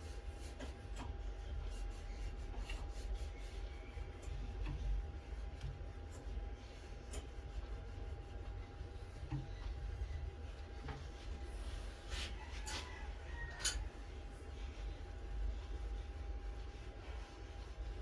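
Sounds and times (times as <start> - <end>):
faint taps and rubbing: 8.4 - 11.4.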